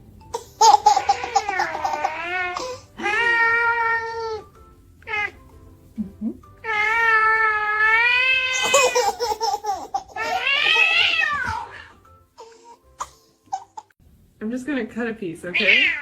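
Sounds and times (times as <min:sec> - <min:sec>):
cat meowing: 0:01.0 - 0:04.4, 0:05.0 - 0:05.5, 0:06.6 - 0:08.7, 0:10.2 - 0:12.0, 0:15.5 - 0:16.0.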